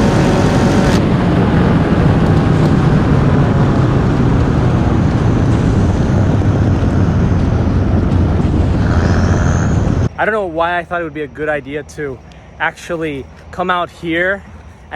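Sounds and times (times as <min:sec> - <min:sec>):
wind on microphone: 0:00.0 - 0:10.2
vehicle rumble: 0:00.0 - 0:14.9.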